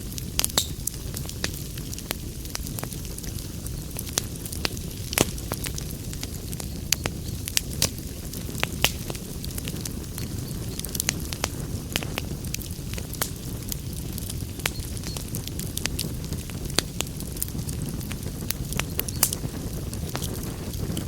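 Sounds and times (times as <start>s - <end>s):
fire crackling and popping: 0.0s - 21.0s
fire rumbling: 0.0s - 21.0s.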